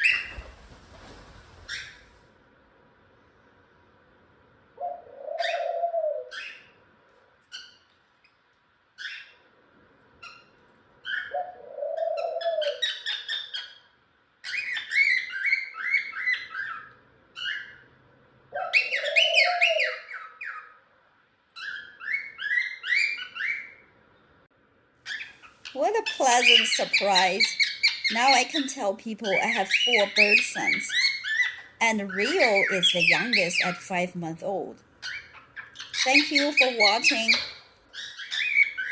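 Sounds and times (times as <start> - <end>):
cockatiels chirping and whistling: 14.5 - 17.8, 21.6 - 23.8, 35.0 - 38.9.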